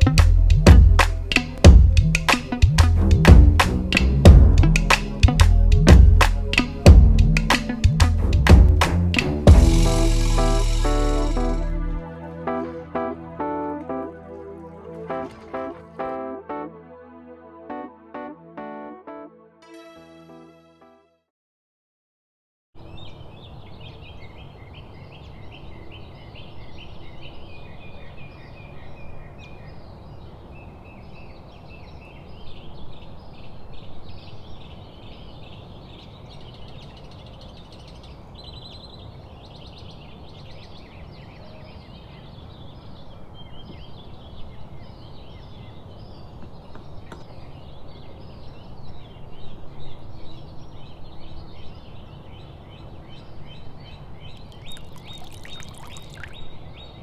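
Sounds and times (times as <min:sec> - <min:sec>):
small birds chirping: 0:22.8 - 0:57.0.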